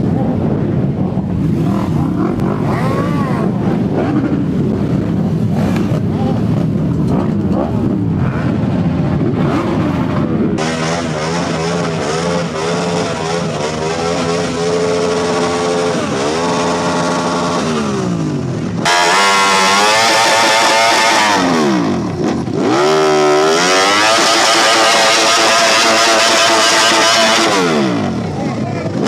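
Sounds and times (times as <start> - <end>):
motorcycle engines revving: 0.0 - 29.0.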